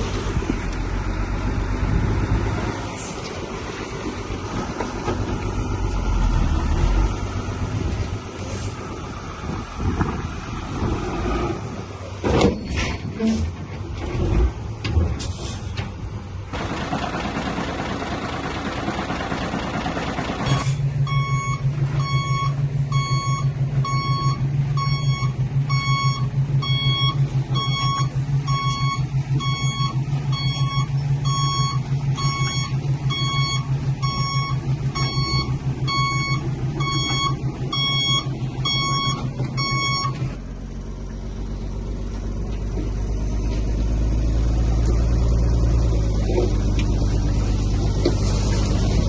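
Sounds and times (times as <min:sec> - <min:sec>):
diesel engine rumbling: 0:00.0 - 0:49.0
reverse alarm beeping: 0:20.5 - 0:40.2.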